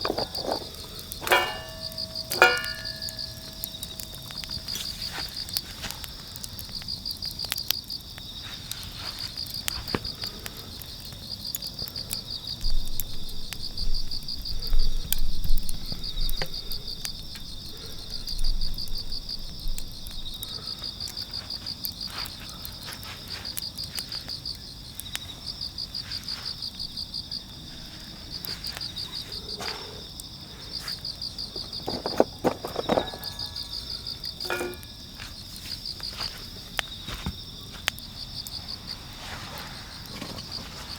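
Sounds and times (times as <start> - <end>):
crickets chirping: 0.0 - 40.9
insect steady trill: 0.0 - 40.9.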